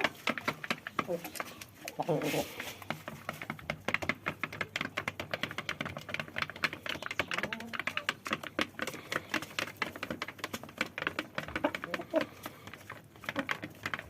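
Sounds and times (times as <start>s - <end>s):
chicken beak pecking taps: 0.0s - 14.0s.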